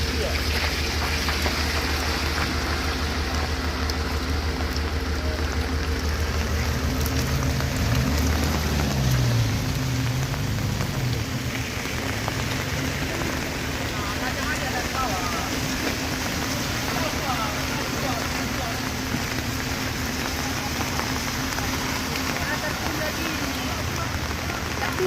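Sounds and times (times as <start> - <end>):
truck engine revving on a climb: 0.0 - 16.5.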